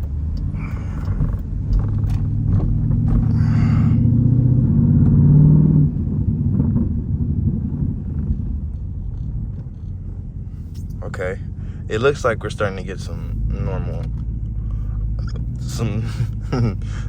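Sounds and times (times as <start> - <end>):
engine revving under throttle: 0.0 - 8.7.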